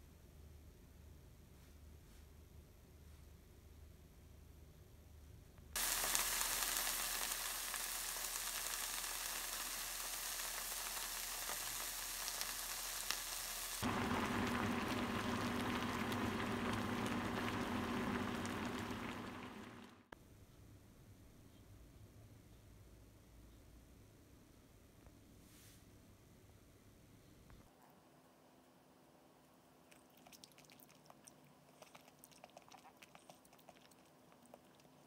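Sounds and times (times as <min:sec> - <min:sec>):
food sizzling in a pan: 0:05.8 - 0:20.1
sauce bubbling in a pan: 0:05.8 - 0:20.1
low steady hum: 0:13.8 - 0:24.8.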